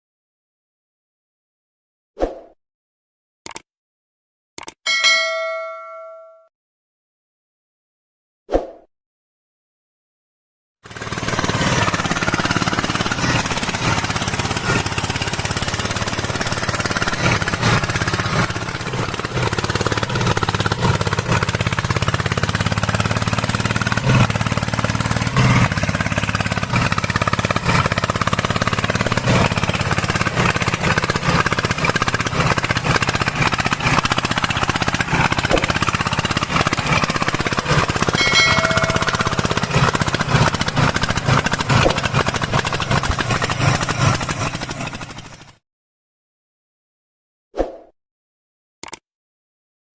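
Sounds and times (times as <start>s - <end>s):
diesel engine chugging: 10.8s - 45.6s.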